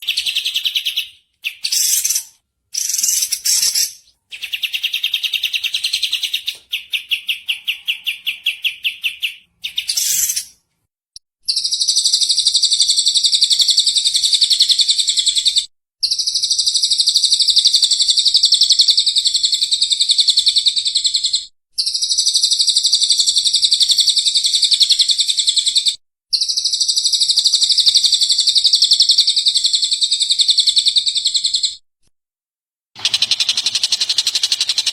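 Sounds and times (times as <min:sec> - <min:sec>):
songbird chirping and trilling: 0:00.0 - 0:10.6.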